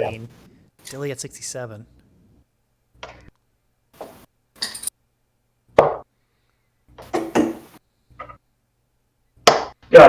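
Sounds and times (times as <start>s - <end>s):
darts hitting a dartboard: 7.1s - 7.7s, 9.4s - 9.8s.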